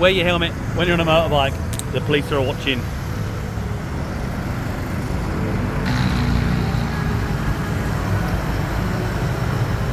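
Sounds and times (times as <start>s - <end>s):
rumble of passing traffic: 0.0s - 9.9s
loud passing vehicle: 5.4s - 9.9s.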